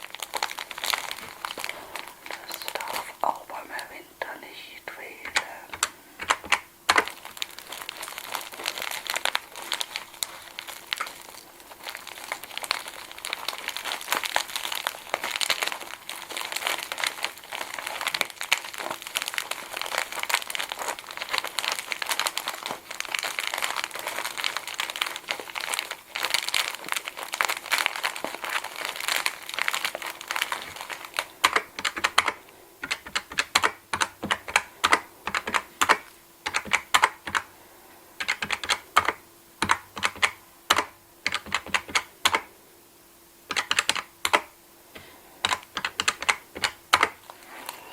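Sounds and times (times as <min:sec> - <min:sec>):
crinkling and crackling clicks: 0:00.0 - 0:42.5, 0:43.4 - 0:47.9.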